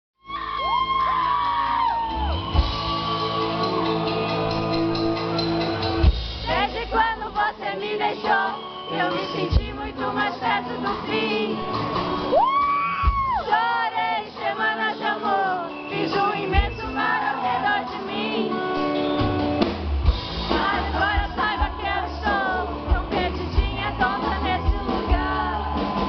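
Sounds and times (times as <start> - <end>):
fans shouting and whooping: 0.2 - 7.2, 8.2 - 15.7, 20.6 - 26.0
live concert music: 0.2 - 26.0
crowd singing and calling out: 1.9 - 26.0.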